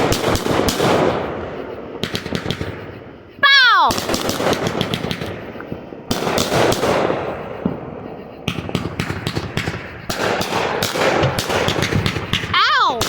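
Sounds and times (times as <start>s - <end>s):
fireworks crackling bangs: 0.0s - 13.0s.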